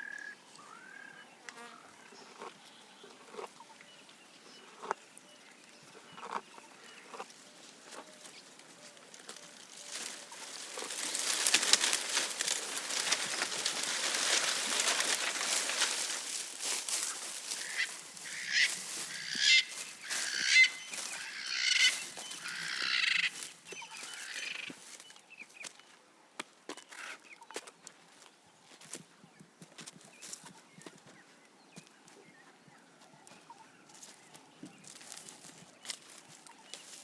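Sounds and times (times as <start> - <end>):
rustling with crackles: 7.6 - 22.7
harsh bird calls: 9.4 - 25.0.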